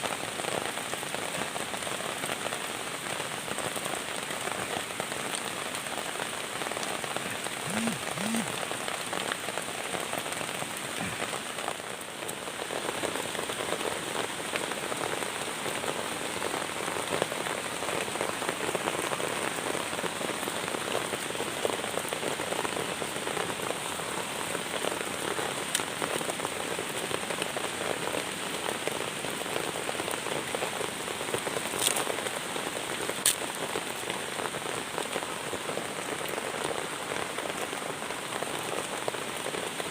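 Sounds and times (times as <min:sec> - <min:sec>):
steady rain falling: 0:00.0 - 0:39.9
constant high-pitched tone: 0:07.7 - 0:08.5.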